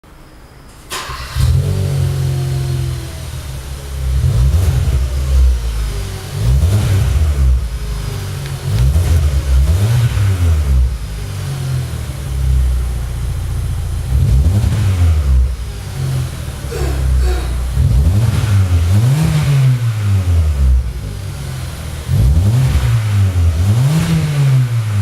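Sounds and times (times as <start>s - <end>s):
car engine revving: 0.9s - 25.0s.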